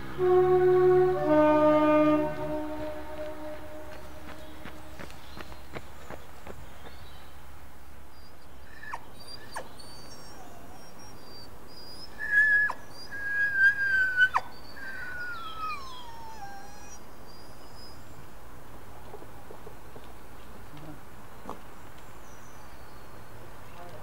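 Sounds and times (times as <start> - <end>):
steady background hiss: 0.0 - 24.0
small birds chirping: 3.6 - 24.0
whistled bird calls: 8.2 - 18.1.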